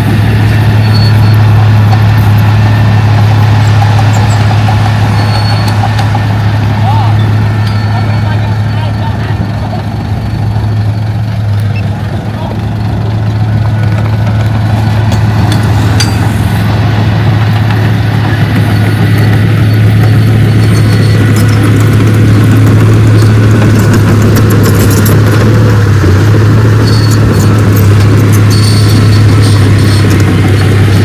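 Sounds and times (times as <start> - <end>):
diesel machine engine running: 0.0 - 31.0.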